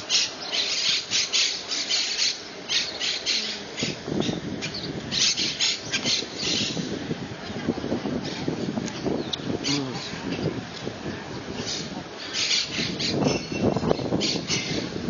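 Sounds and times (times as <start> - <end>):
parrots squawking: 0.1 - 6.8, 11.7 - 14.8.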